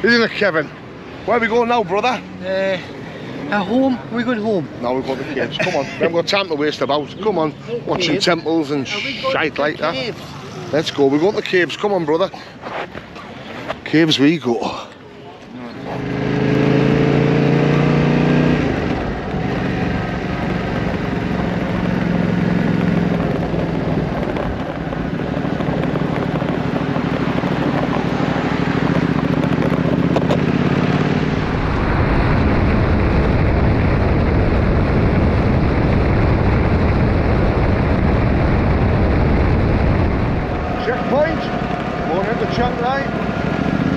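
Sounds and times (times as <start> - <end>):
motorcycle engine revving: 15.7 - 43.9
wind buffeting microphone: 18.6 - 43.9.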